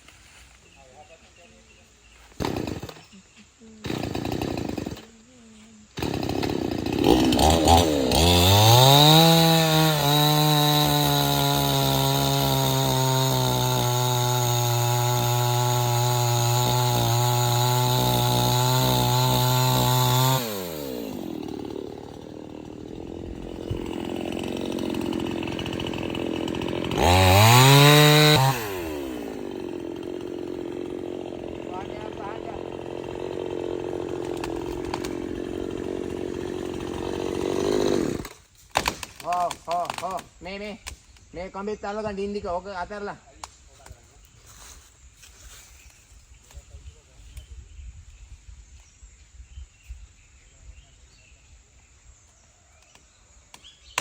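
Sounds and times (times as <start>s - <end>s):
chainsaw sawing through wood: 2.3s - 40.7s.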